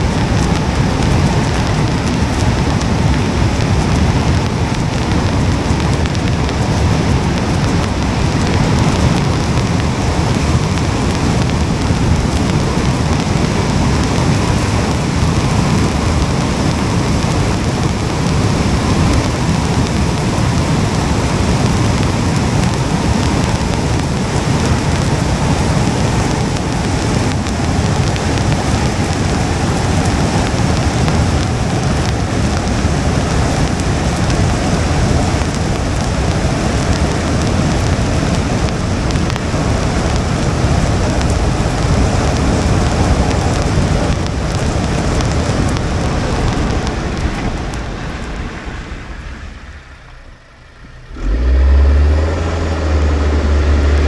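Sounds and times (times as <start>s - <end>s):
low rumble: 0.0s - 54.0s
steady rain: 0.0s - 54.0s.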